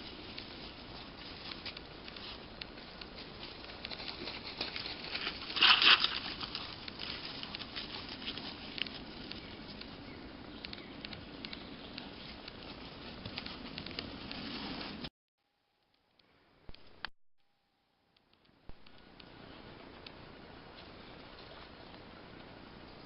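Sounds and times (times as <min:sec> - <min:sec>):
light crackles on forest floor: 0:00.0 - 0:15.1
loud rustle: 0:03.2 - 0:09.3.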